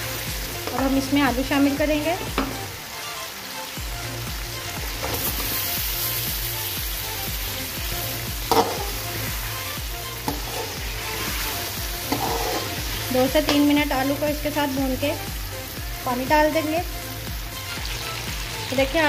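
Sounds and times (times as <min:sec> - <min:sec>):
food sizzling in a pan: 0:00.0 - 0:19.0
spoon clacking against pan: 0:08.5 - 0:09.0, 0:12.0 - 0:12.8, 0:13.4 - 0:13.8
metal spoon stirring: 0:10.2 - 0:13.7.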